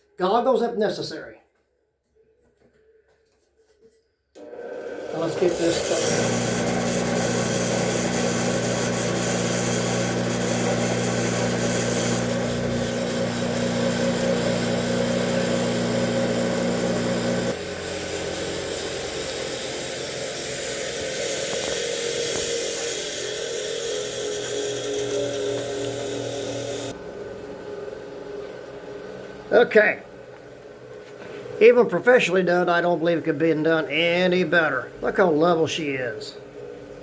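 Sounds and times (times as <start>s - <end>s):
bench grinder motor hum: 4.4s - 27.0s
grinding stone on steel blade: 5.0s - 26.9s.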